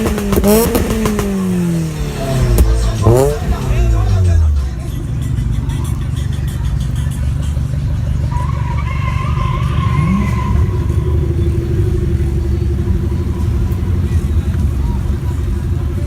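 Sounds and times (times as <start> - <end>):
car engine rumbling: 0.0 - 16.0.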